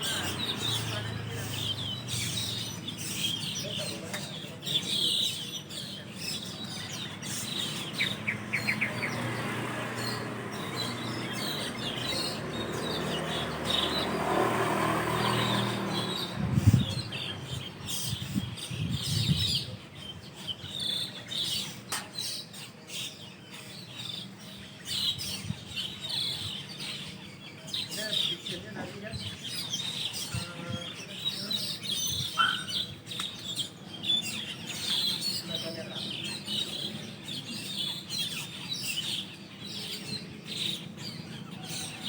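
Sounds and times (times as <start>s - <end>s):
starlings chirping: 0.0s - 42.0s.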